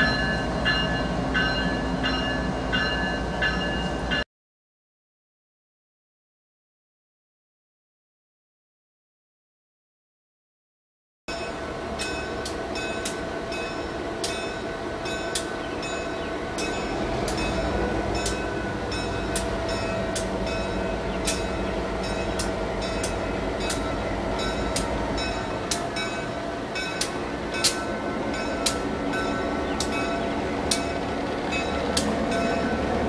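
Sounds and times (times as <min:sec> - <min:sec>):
train rumbling: 0:00.0 - 0:04.2, 0:11.3 - 0:33.0
sharp rail clicks: 0:15.3 - 0:15.5, 0:16.5 - 0:26.2, 0:26.8 - 0:32.7.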